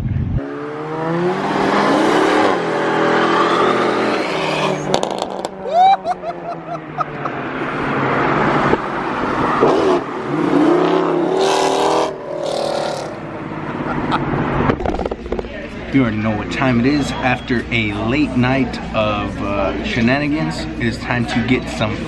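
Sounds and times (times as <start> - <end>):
vehicle engine revving: 0.2 - 5.7, 6.4 - 15.4.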